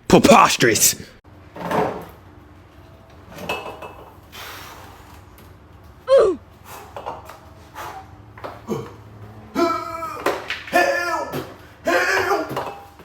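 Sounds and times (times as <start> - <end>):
person crying out: 6.1 - 6.4, 9.6 - 12.6.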